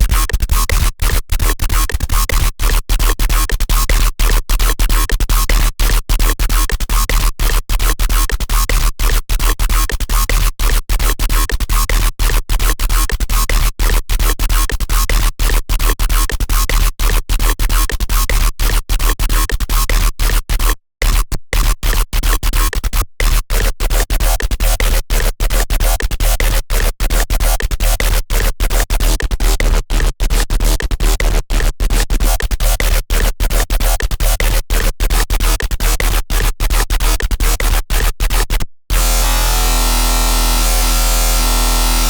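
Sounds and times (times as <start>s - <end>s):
deep sub-bass: 38.9s - 42.0s
harsh stuttering synth hits: 38.9s - 42.0s
sustained buzzy synth tone: 38.9s - 42.0s.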